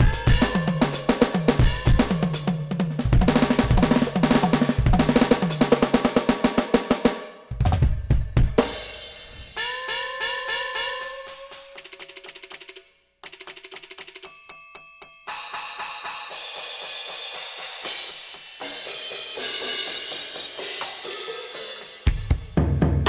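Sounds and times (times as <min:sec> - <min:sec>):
cymbal wash: 0:00.0 - 0:07.4, 0:15.3 - 0:22.4
electronic drum kit: 0:00.0 - 0:14.2, 0:15.3 - 0:23.0.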